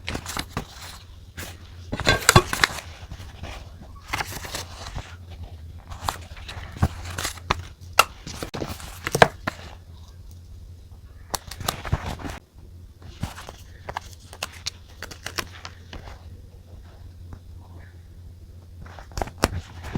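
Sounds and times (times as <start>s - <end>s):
low hum: 0.0s - 19.9s.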